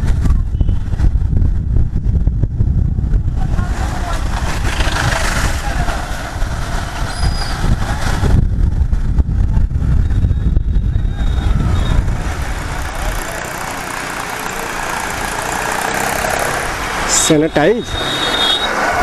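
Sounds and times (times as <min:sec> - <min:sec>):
wind rumble on microphone: 0:00.0 - 0:13.3
motorcycle engine riding: 0:00.0 - 0:17.3
street and traffic noise: 0:00.0 - 0:19.0.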